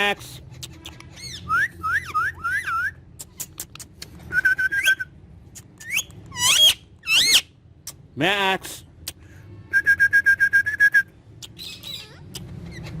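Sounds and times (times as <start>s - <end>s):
parrot whistling: 1.2s - 3.0s, 4.3s - 5.1s, 5.8s - 7.5s.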